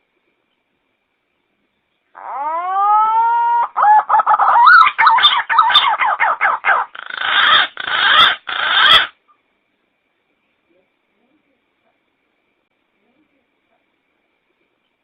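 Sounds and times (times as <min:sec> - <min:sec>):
pigeon call whistled and warbled: 0:02.3 - 0:09.1.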